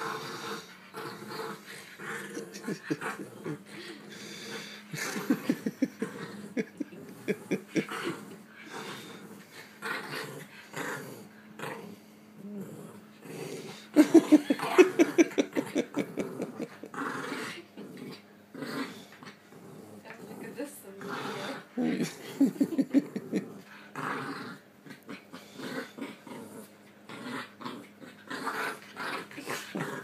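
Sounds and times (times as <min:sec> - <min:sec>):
dogs growling: 0:00.0 - 0:30.0.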